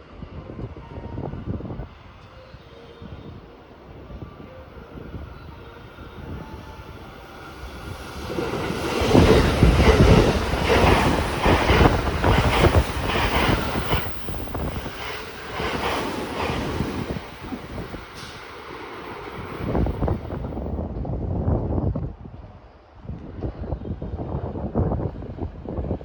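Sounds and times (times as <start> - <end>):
train passing: 0.0 - 20.9
wind buffeting microphone: 0.1 - 26.0
wheels clacking on rail joints: 7.6 - 20.2.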